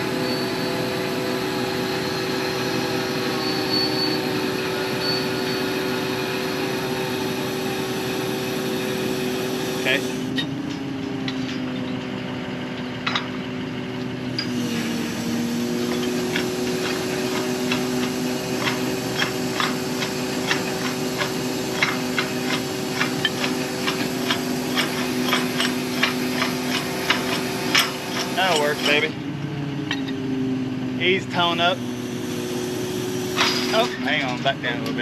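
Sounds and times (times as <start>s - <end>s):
motor running: 0.0s - 35.0s.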